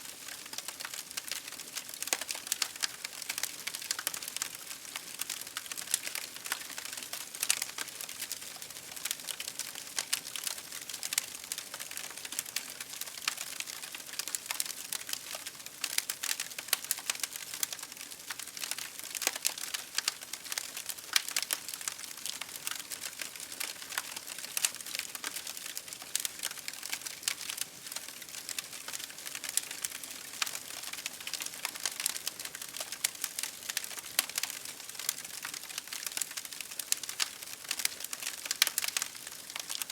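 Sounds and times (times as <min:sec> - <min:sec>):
campfire crackling: 0:15.8 - 0:39.9.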